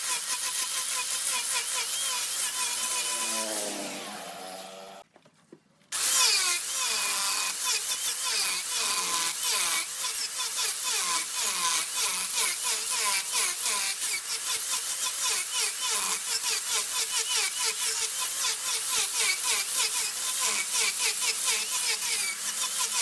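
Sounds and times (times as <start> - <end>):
lathe tool scraping spinning wood: 0.0 - 5.0.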